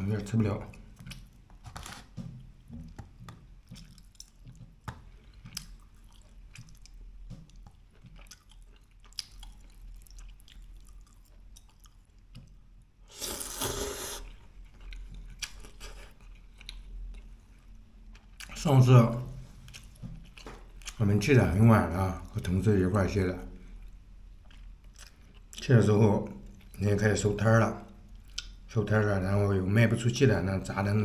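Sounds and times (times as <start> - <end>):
person chewing food: 0.7 - 18.6, 19.5 - 21.0, 23.6 - 25.6, 27.9 - 28.6.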